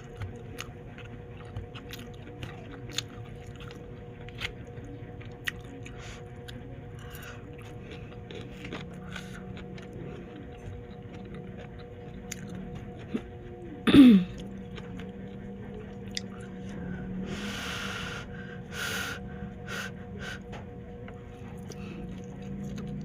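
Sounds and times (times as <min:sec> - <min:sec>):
wet chewing clicks: 0:00.0 - 0:13.3.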